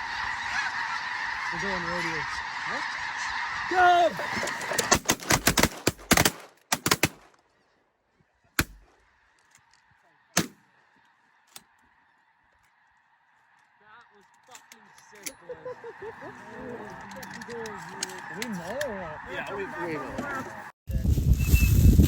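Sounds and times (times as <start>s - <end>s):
geese calling: 0.0s - 6.3s, 7.5s - 20.7s
shotgun shots: 4.9s - 7.3s.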